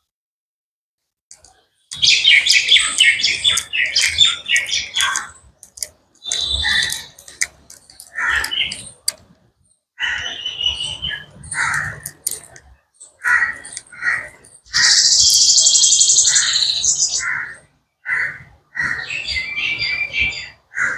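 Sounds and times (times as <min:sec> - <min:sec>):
birds calling: 0:01.4 - 0:09.2, 0:10.0 - 0:20.9
high rapid bird chattering: 0:01.9 - 0:09.2, 0:10.0 - 0:19.5
crows cawing: 0:06.4 - 0:08.8, 0:10.0 - 0:12.6, 0:13.2 - 0:15.2, 0:16.2 - 0:19.2.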